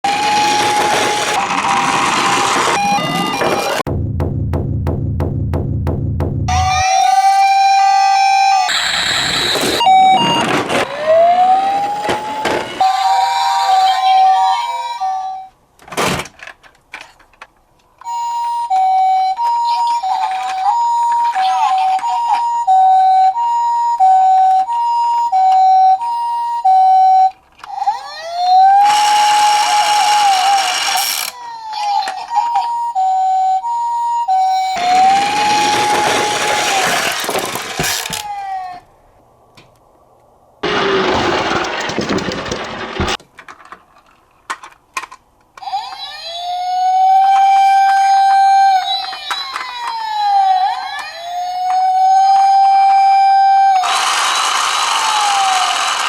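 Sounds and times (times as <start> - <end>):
two-tone siren: 0.0 - 3.8, 6.5 - 15.5, 22.0 - 27.4, 28.2 - 30.8, 32.5 - 36.8, 46.2 - 56.0
wailing siren: 0.0 - 3.8, 6.5 - 15.2, 22.0 - 27.4, 28.1 - 30.9, 32.5 - 37.0, 45.9 - 56.0
loud rattling clatter: 40.6 - 43.2.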